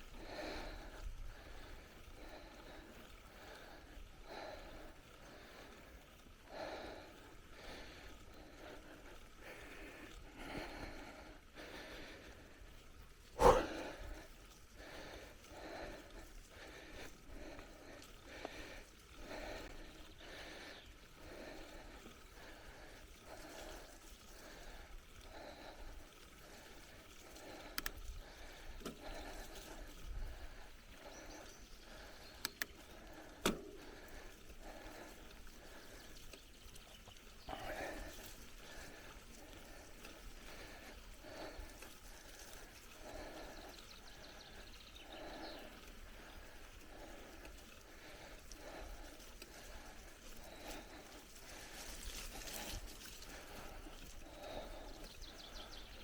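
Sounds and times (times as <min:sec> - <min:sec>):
bicycle tyres on dirt: 0:00.0 - 0:56.0
heavy rhythmic breathing: 0:00.1 - 0:56.0
bicycle bumps and rattles: 0:12.5 - 0:55.9.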